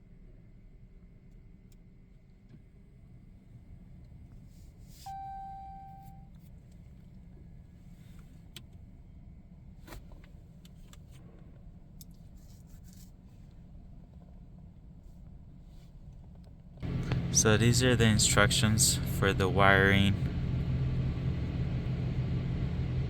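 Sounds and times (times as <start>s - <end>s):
low rumble in truck cab: 5.1s - 6.3s, 16.8s - 23.0s.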